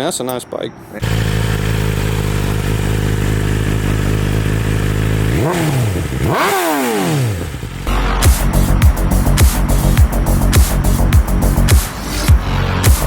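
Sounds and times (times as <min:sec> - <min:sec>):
motorcycle engine idling and revving: 0:01.0 - 0:13.0
music: 0:07.9 - 0:13.0.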